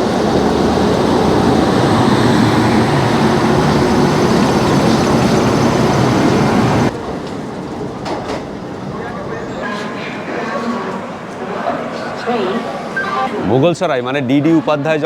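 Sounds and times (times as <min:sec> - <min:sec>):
train wheels rumbling on rails: 0:00.0 - 0:11.5.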